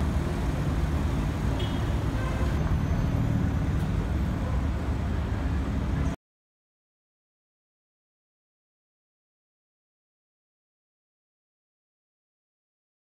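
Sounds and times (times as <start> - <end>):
car engine low rumble: 0.0 - 6.2.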